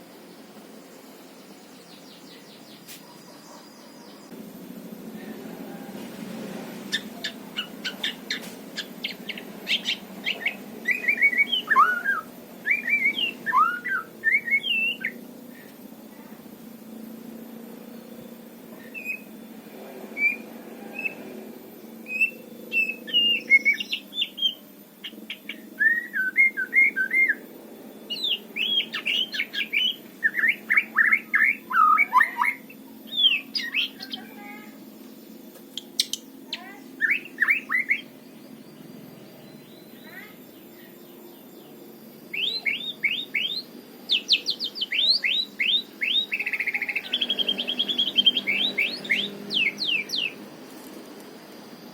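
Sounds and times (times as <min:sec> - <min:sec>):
bird singing whistled notes: 0:06.9 - 0:15.7, 0:18.8 - 0:19.3, 0:20.2 - 0:21.3, 0:22.0 - 0:27.4, 0:28.0 - 0:34.4, 0:35.8 - 0:50.4.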